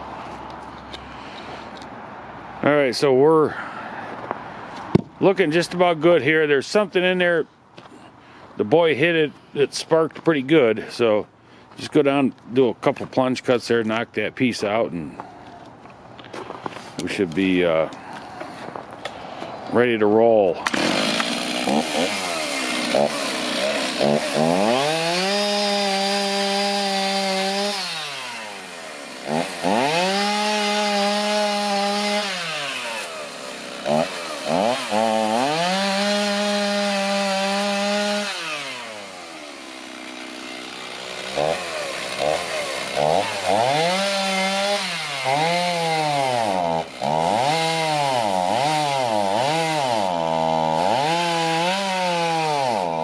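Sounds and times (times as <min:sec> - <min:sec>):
electric chainsaw cutting log: 0:20.6 - 0:53.0.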